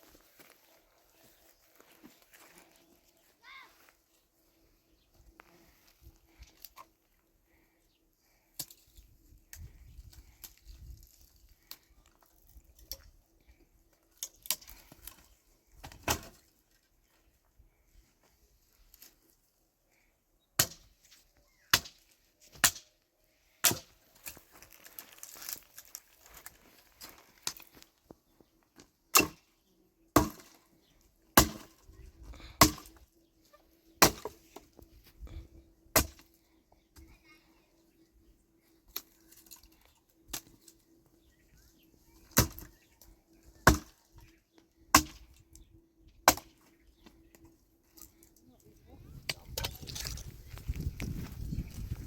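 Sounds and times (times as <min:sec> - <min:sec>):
axe chopping firewood: 0:15.8 - 0:16.4, 0:20.6 - 0:21.0, 0:21.7 - 0:22.9, 0:23.6 - 0:24.4, 0:29.1 - 0:29.5, 0:30.2 - 0:30.6, 0:31.3 - 0:31.8, 0:32.4 - 0:33.0, 0:34.0 - 0:34.7, 0:35.9 - 0:36.4, 0:42.2 - 0:42.7, 0:43.6 - 0:44.2, 0:44.9 - 0:45.4, 0:46.2 - 0:46.6.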